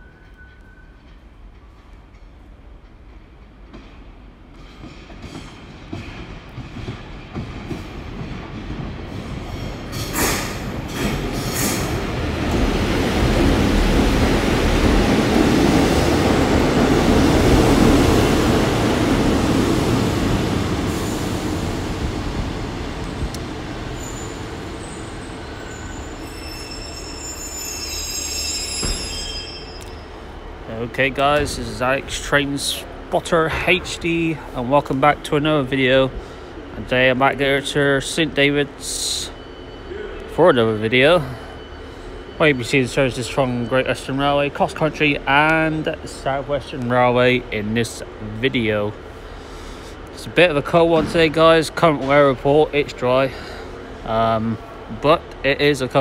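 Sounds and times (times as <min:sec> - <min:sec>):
brake squeals: 0:24.0 - 0:30.3, 0:39.1 - 0:44.1.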